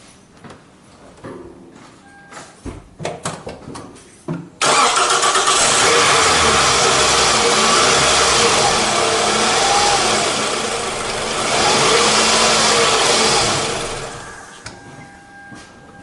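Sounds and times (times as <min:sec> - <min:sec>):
car engine revving: 0:04.6 - 0:14.5.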